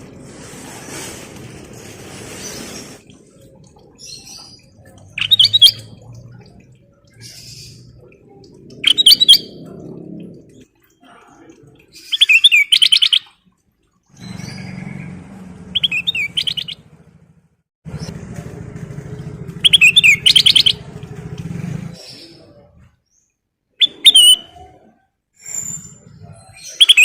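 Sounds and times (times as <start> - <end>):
bulbul singing trilled phrases: 4.0 - 6.4
low pulsing motor drone: 16.8 - 22.8.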